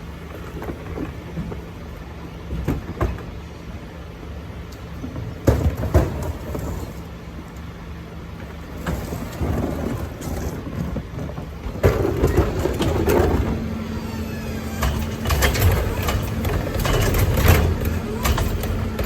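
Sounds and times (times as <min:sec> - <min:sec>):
garbage truck engine running: 0:05.2 - 0:19.0
clattering rushing noise: 0:08.8 - 0:19.0.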